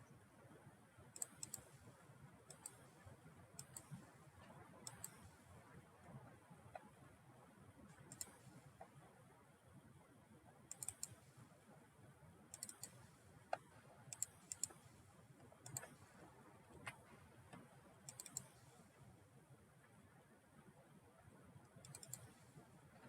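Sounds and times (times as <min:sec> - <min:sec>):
mouse and keyboard clicks: 0:01.2 - 0:01.7, 0:02.5 - 0:03.0, 0:03.6 - 0:04.1, 0:04.8 - 0:05.3, 0:08.0 - 0:08.4, 0:10.7 - 0:11.2, 0:12.5 - 0:14.9, 0:15.6 - 0:16.0, 0:16.8 - 0:18.7, 0:21.8 - 0:22.4.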